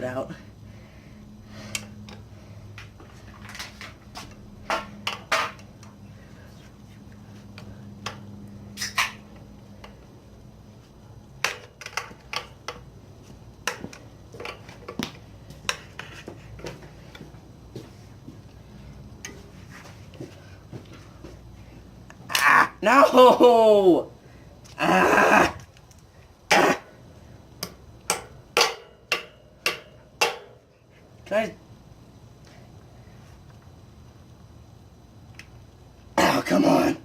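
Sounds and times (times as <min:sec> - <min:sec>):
low steady hum: 0:00.0 - 0:37.0
tool and bike parts clicking: 0:11.4 - 0:12.9.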